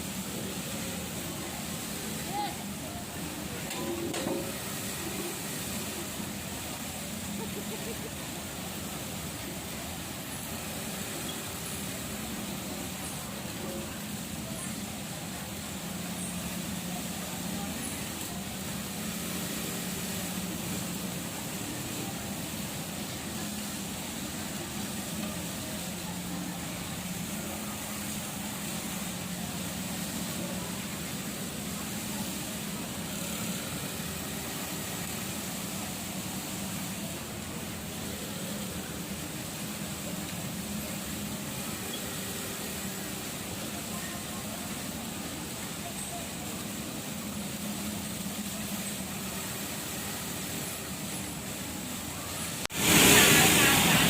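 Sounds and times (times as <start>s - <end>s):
even hiss: 0.0s - 54.0s.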